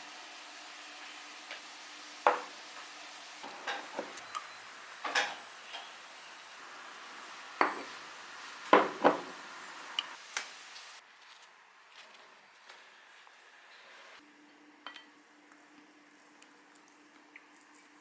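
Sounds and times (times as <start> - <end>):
dishes and cutlery clinking: 3.4 - 4.2, 5.0 - 5.9.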